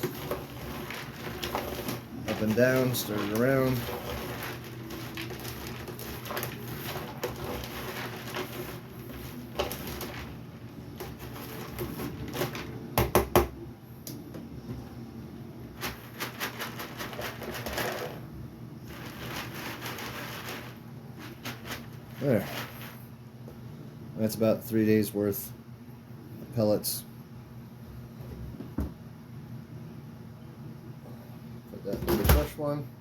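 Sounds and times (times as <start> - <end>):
cat litter rattling in sifting box: 0.0 - 12.7, 15.8 - 18.2, 18.8 - 23.1.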